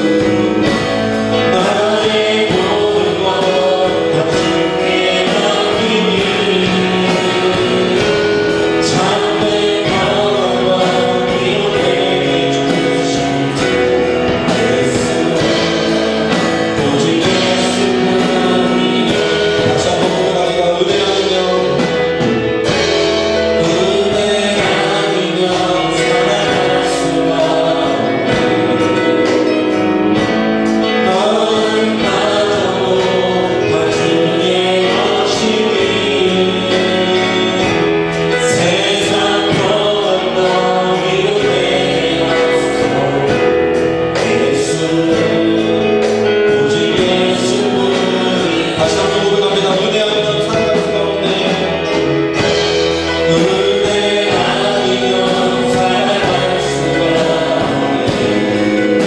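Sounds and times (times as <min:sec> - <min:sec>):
congregation singing with band: 0:00.0 - 0:59.0.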